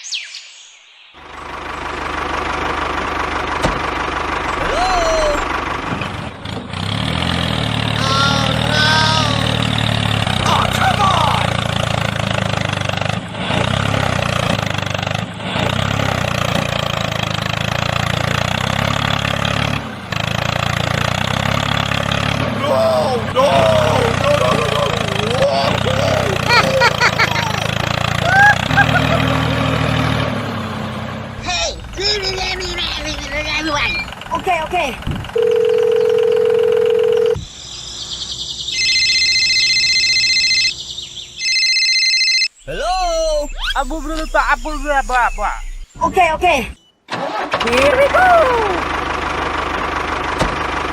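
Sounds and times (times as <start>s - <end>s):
engine running with even pulsing: 1.2s - 46.0s, 47.6s - 50.9s
electronic telephone ring: 35.4s - 37.4s, 38.8s - 40.7s, 41.4s - 42.5s
steady electronic tone: 42.6s - 46.0s.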